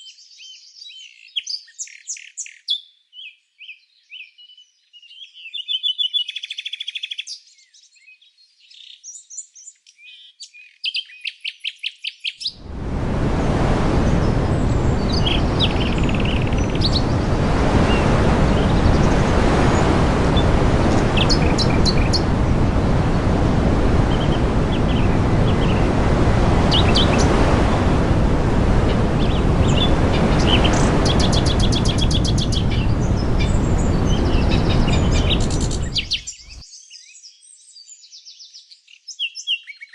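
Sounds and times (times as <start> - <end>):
small birds chirping: 0.0 - 12.7, 14.1 - 27.6, 28.8 - 39.9
loud steady rushing noise: 12.6 - 36.1.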